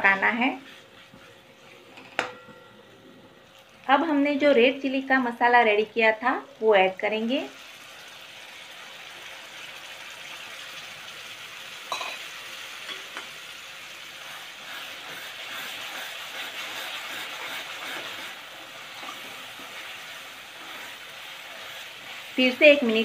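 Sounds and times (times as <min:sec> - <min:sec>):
masala sizzling in oil: 0:00.0 - 0:01.8, 0:03.4 - 0:23.0
spoon stirring and scraping: 0:00.0 - 0:02.2, 0:14.2 - 0:23.0
spoon clinking against pan: 0:11.9 - 0:12.2.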